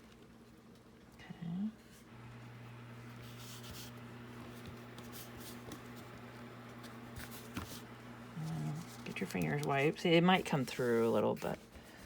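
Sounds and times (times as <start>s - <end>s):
steady low hum: 1.2s - 11.7s
fingers rustling fabric on paper: 3.2s - 12.0s.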